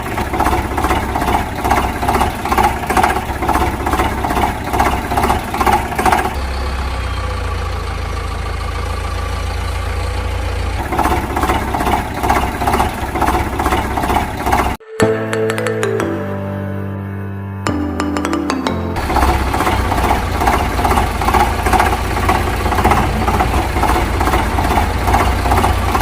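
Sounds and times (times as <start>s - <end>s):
tractor engine chugging: 0.0s - 14.8s, 18.0s - 26.0s
music: 14.8s - 19.0s.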